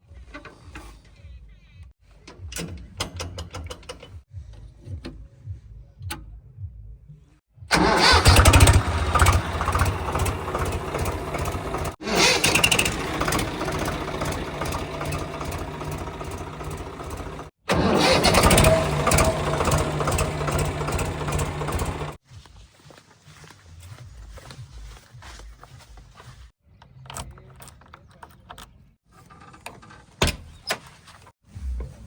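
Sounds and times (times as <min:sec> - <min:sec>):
heavy diesel engine running: 0:07.7 - 0:22.2.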